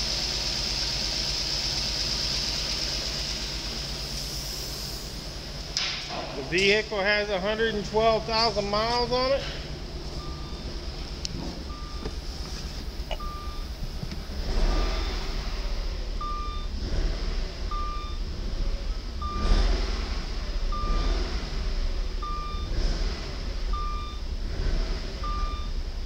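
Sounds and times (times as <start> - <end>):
car engine revving: 0.0 - 26.0
short beeps: 10.2 - 10.7, 11.7 - 12.0, 13.1 - 13.7, 16.2 - 16.7, 17.7 - 18.2, 22.2 - 22.7, 23.8 - 24.2, 25.2 - 25.7.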